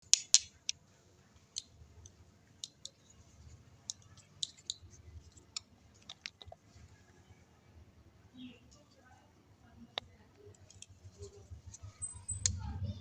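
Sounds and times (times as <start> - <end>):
slime clicking and popping: 0.0 - 0.6.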